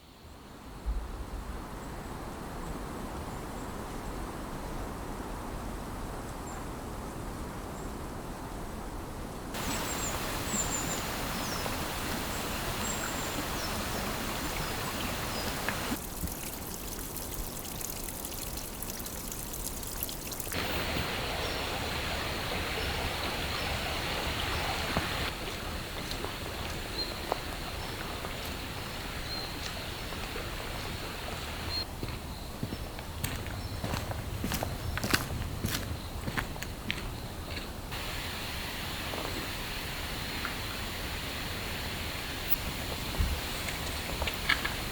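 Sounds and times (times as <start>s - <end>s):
faint high bird chirps: 9.6s - 15.9s
running water rushing: 9.6s - 31.9s, 37.9s - 44.9s.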